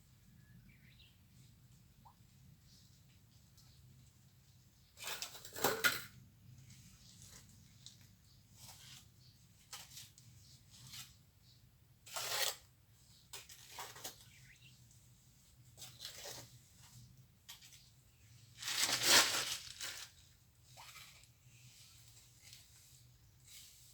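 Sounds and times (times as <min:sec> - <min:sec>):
trowel scraping mortar: 0:12.1 - 0:12.7.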